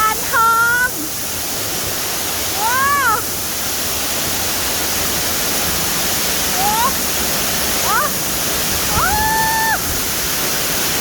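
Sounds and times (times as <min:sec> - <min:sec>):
waterfall rushing: 0:00.0 - 0:11.0
high-pitched voice calls: 0:07.8 - 0:08.2.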